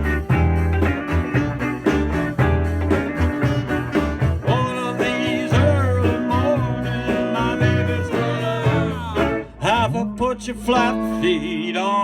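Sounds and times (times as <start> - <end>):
repeated bass line: 0.0 - 11.8
electric guitar: 0.0 - 12.0.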